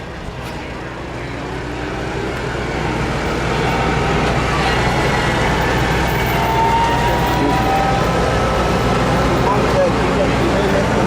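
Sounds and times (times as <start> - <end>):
tractor engine running hard: 0.0 - 11.0.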